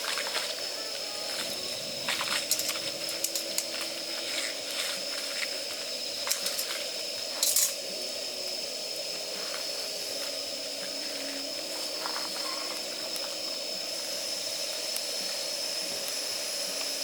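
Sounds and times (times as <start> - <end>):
steady fire hiss: 0.0 - 17.0
campfire crackling and popping: 1.3 - 7.7.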